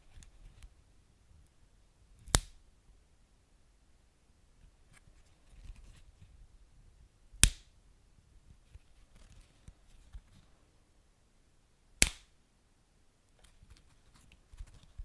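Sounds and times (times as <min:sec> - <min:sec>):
sharp pops of fire: 0:12.0 - 0:12.2.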